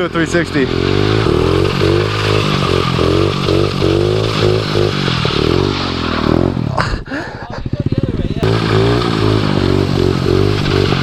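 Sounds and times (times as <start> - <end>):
pit bike engine revving: 0.0 - 11.0.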